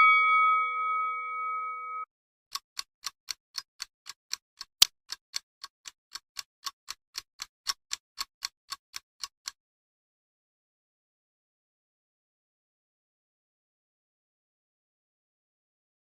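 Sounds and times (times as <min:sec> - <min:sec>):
clock ticking: 0:02.5 - 0:09.6.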